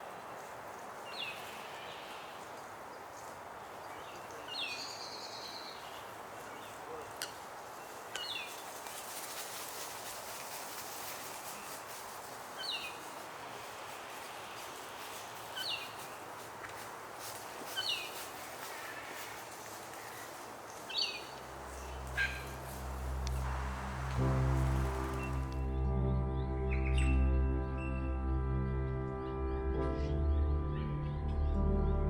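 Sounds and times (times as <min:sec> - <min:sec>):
background hiss: 0:00.0 - 0:25.7
bird chirping: 0:03.8 - 0:07.0, 0:20.7 - 0:25.8.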